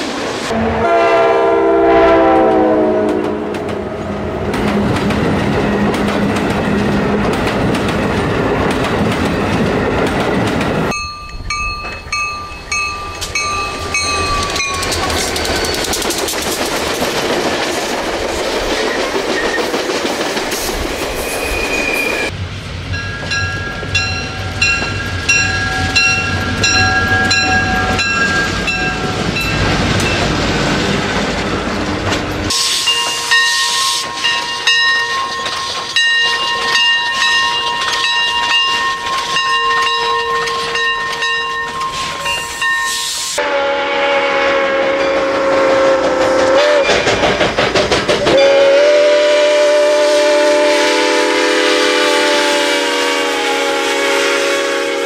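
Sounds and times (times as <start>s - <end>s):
train rumbling past: 0.0s - 55.0s
train horn blasts: 0.5s - 4.3s, 39.7s - 41.4s, 42.9s - 47.2s, 48.3s - 55.0s
wheels clacking on rail joints: 4.4s - 43.0s, 45.0s - 48.6s.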